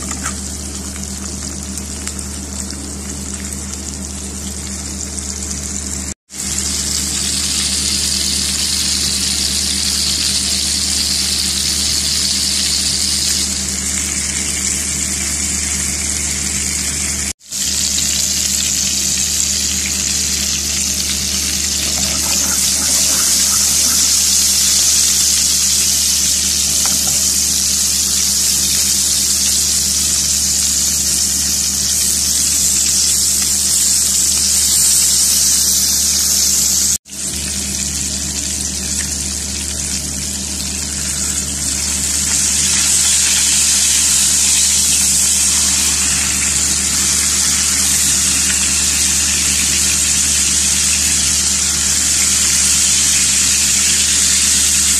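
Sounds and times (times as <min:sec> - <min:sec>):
steak sizzling in frying pan: 0:00.0 - 0:54.9
low hum: 0:37.2 - 0:54.9.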